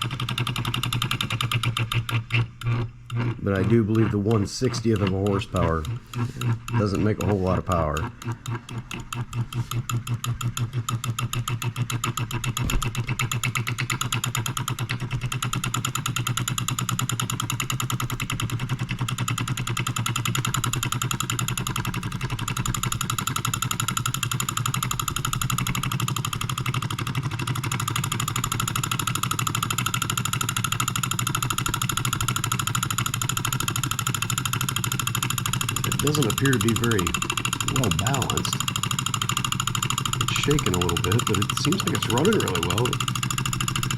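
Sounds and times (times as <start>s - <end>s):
solenoid engine clattering: 0.0s - 43.9s
electric coil hum: 31.0s - 43.9s.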